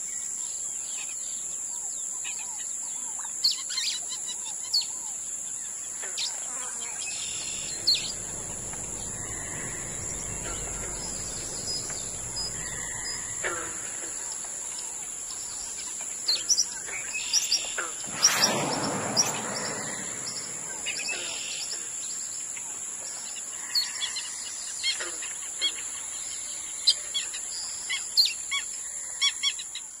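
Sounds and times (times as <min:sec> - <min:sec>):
high-pitched hiss: 0:06.9 - 0:24.0
birds chirping and calling: 0:07.1 - 0:14.8
rushing noise: 0:07.1 - 0:15.5, 0:17.9 - 0:22.3.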